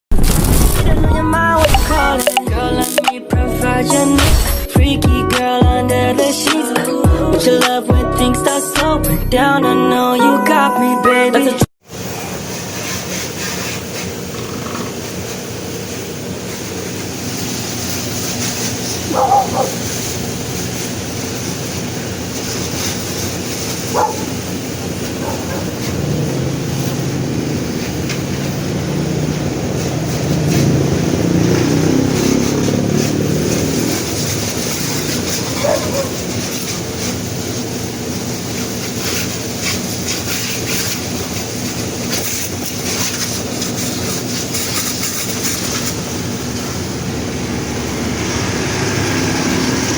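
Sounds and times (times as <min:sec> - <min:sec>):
mechanical drone: 0:12.0 - 0:39.2, 0:41.7 - 0:49.9.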